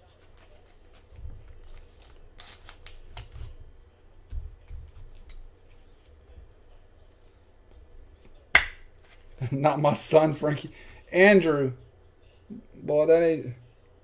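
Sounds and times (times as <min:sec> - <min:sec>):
cards rustling and sliding: 0:00.0 - 0:03.6, 0:09.0 - 0:09.4.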